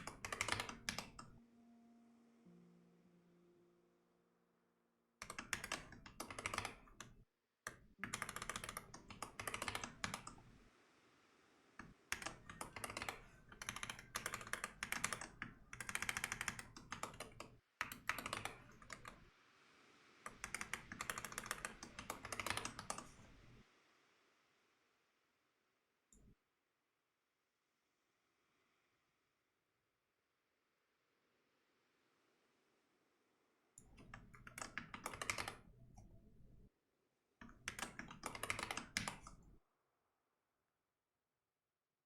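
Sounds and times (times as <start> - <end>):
typing on computer keyboard: 0.0 - 1.4, 5.2 - 10.5, 11.8 - 19.2, 20.3 - 23.5, 33.8 - 35.8, 37.4 - 39.5.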